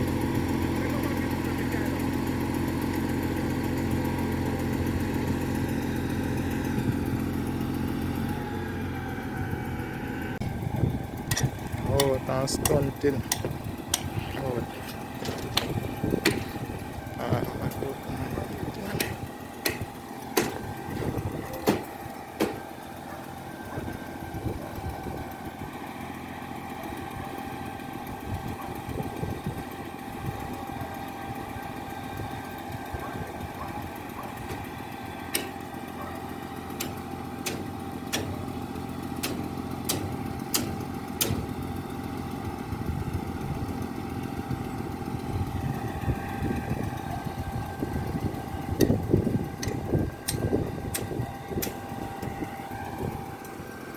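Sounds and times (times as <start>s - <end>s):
engine whining: 0.0s - 53.9s
sharp knocks: 19.0s - 20.7s, 21.6s - 22.6s.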